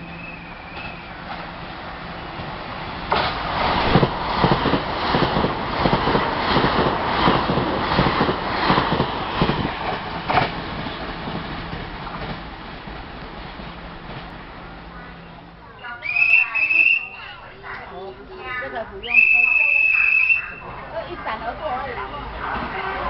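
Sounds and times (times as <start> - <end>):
train wheels clacking over rail joints: 3.1 - 12.5.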